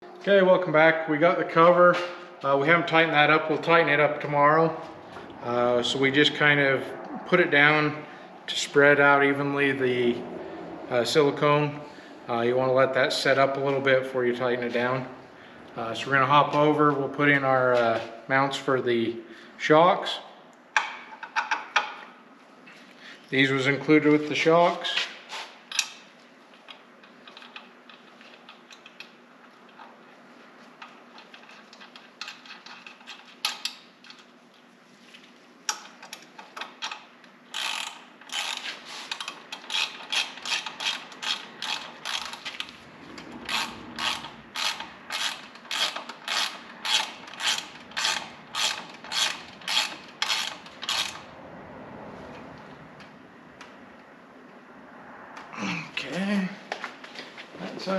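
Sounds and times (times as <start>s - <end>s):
ratchet wrench clicking: 36.8s - 42.6s, 43.4s - 51.3s.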